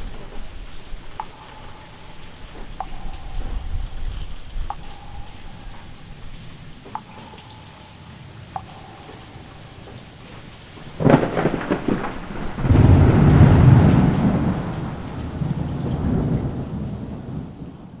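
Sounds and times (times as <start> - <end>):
steady rain: 0.0 - 18.0
thunderclap and low rumble: 9.4 - 18.0.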